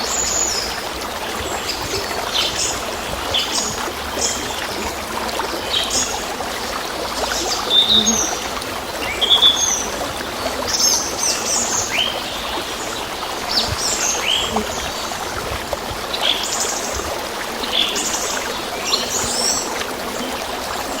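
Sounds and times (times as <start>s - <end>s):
small birds chirping: 7.2s - 20.9s.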